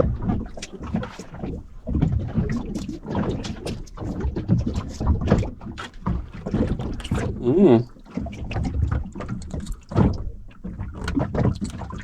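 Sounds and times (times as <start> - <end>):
water slapping against boat hull: 0.0 - 12.0.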